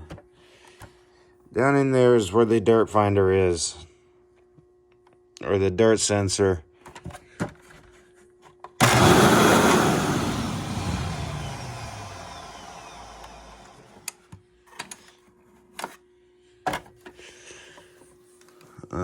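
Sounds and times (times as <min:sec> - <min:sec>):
vacuum motor whine winding down: 0:08.8 - 0:14.1.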